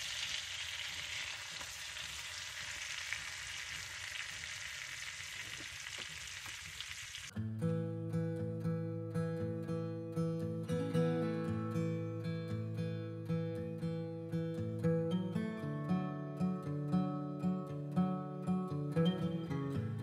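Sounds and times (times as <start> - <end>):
chicken sizzling in oil: 0.0 - 7.3
strummed acoustic guitar music: 7.3 - 20.0.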